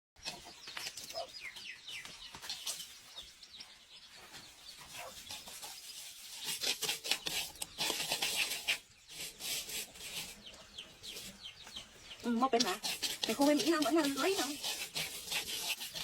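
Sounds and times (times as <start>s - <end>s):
birds chirping: 0.2s - 16.0s
rapid scratchy sounds: 4.8s - 11.4s, 12.2s - 16.0s.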